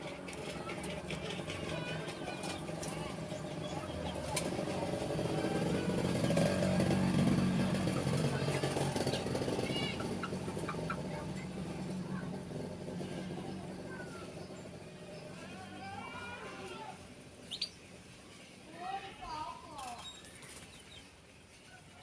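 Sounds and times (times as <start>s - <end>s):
canary chirps: 17.4s - 18.0s.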